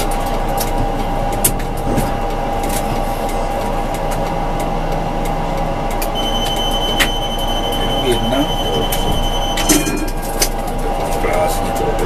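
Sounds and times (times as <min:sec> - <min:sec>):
rail clicks: 0:00.0 - 0:12.0
tram running on track: 0:00.0 - 0:12.0
high steady tone: 0:06.1 - 0:10.2.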